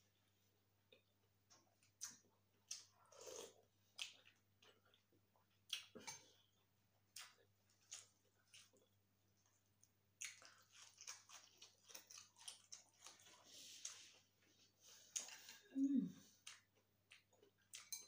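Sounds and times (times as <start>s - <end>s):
chewing with wet lip smacks: 10.2s - 14.1s.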